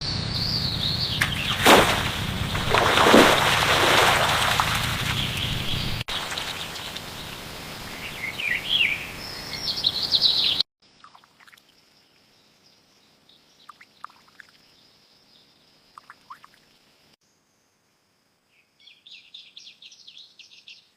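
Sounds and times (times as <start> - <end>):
birds chirping: 0.0 - 10.6.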